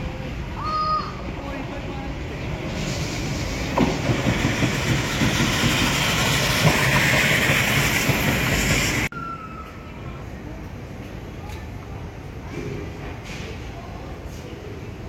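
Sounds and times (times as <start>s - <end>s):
train rushing past: 0.0s - 10.5s
wheels knocking: 3.3s - 9.1s.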